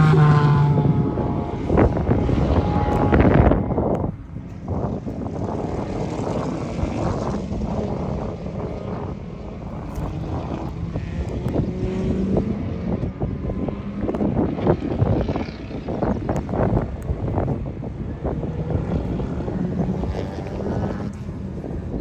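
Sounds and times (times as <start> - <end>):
race car passing at speed: 0.0 - 16.6, 17.6 - 22.0.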